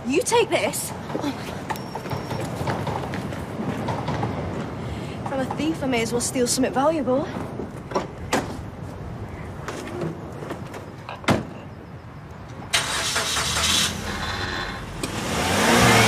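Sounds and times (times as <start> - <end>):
car engine starting and revving: 12.7 - 16.0.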